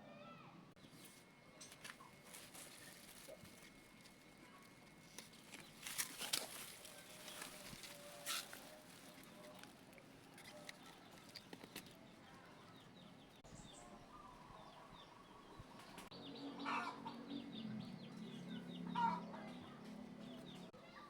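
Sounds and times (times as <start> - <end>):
low steady hum: 0.0 - 20.7
small birds chirping: 0.8 - 21.0
chickens clucking: 15.8 - 20.7.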